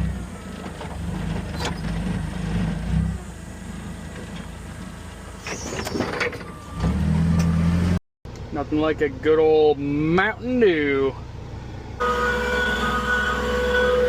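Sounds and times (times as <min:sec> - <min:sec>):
clunks and rattles: 0:00.0 - 0:03.2, 0:04.0 - 0:07.6
diesel engine running: 0:00.0 - 0:14.0.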